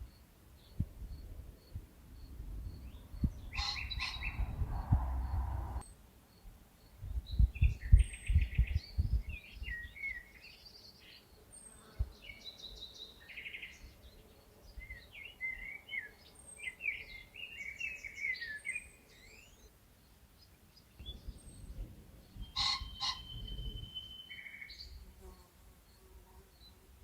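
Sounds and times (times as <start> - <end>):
songbird singing trills: 0.0 - 26.8
low thumps: 2.4 - 5.8
high bird chirps: 2.7 - 5.8, 22.5 - 25.0.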